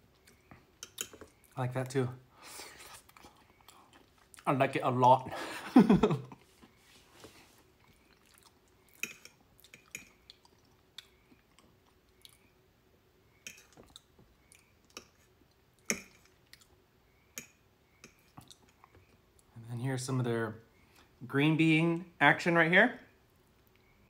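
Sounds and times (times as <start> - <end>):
close chewing: 2.8 - 4.5, 7.7 - 12.5, 13.5 - 16.8.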